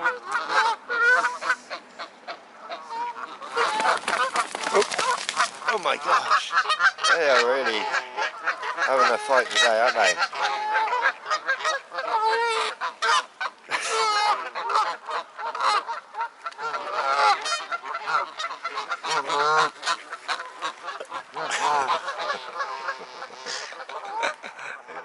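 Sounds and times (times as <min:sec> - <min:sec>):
geese honking: 0:00.0 - 0:25.0.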